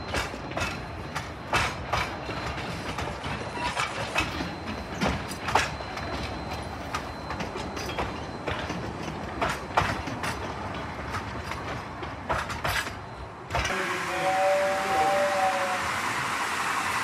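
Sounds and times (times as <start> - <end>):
train wheels clicking over rail joints: 0.0 - 13.8
train rumble: 0.0 - 17.0
two-tone model train whistle: 13.6 - 17.0.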